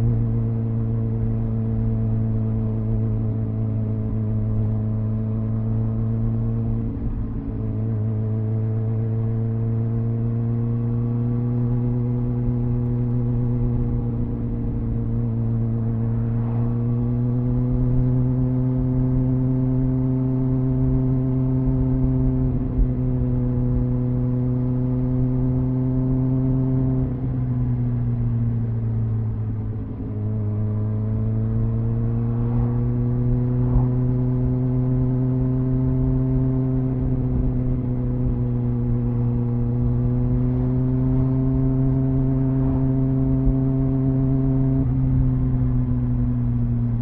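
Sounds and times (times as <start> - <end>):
motorcycle engine running: 11.6 - 47.0.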